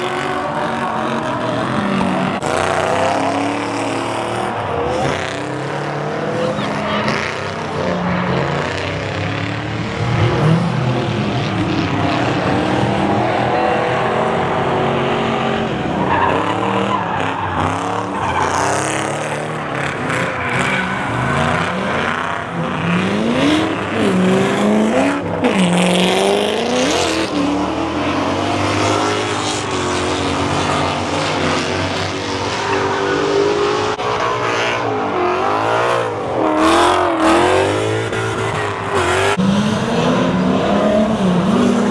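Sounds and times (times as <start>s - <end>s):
car engines revving: 0.0s - 41.9s
tyre squeal and skidding: 15.7s - 25.7s.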